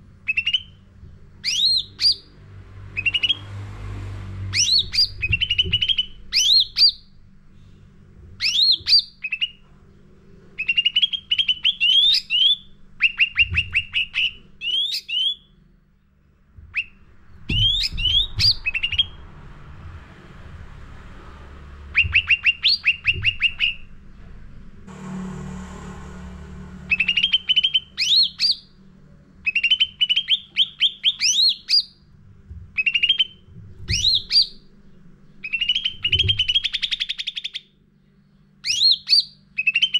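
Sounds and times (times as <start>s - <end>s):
songbird chirping: 0.2s - 3.6s, 4.5s - 7.2s, 8.4s - 19.3s, 21.3s - 24.0s, 26.6s - 32.1s, 32.8s - 39.9s.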